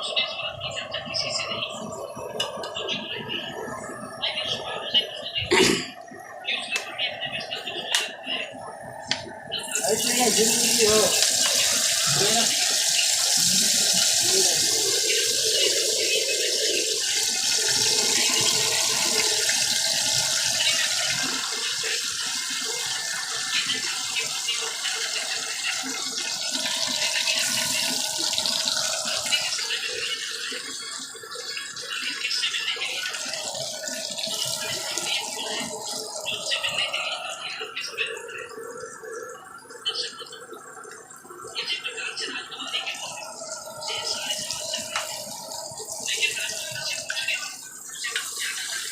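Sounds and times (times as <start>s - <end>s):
fish frying in hot oil: 9.6s - 38.0s, 41.8s - 48.9s.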